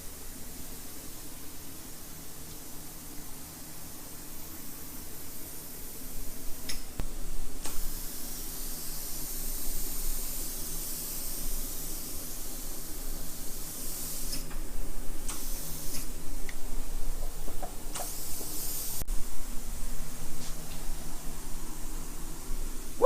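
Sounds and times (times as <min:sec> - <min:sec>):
steady low hum: 0:00.0 - 0:23.0
spray gun hissing: 0:02.7 - 0:06.7, 0:07.7 - 0:14.6, 0:15.2 - 0:16.2, 0:17.9 - 0:19.1.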